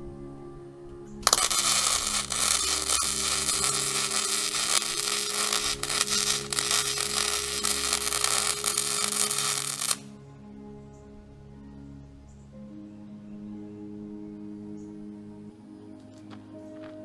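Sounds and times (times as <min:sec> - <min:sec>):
welding arc crackling: 0:01.2 - 0:10.1.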